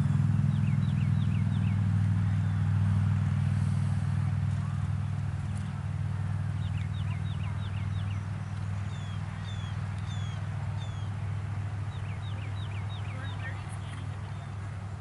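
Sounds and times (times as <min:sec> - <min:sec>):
steady low hum: 0:00.0 - 0:15.0
songbird whistling: 0:06.6 - 0:11.1, 0:11.9 - 0:14.6.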